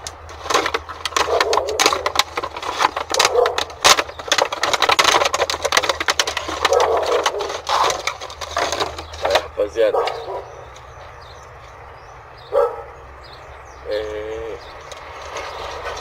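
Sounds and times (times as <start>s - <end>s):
handling knocks: 0.0s - 10.9s.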